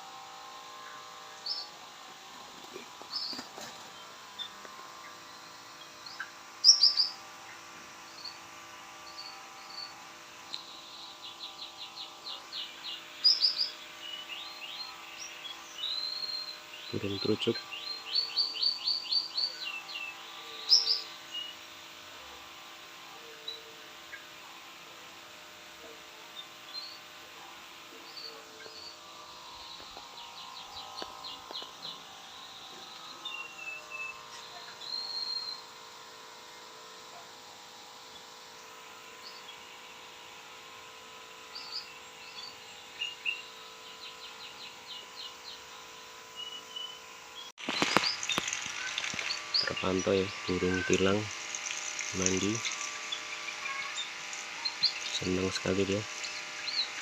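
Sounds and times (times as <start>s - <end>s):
small birds chirping: 0.8s - 24.5s, 25.2s - 36.4s, 38.0s - 39.9s, 40.5s - 57.0s
bulbuls chirping: 2.6s - 8.3s, 47.6s - 57.0s
artificial rain spraying on leaves: 47.6s - 57.0s.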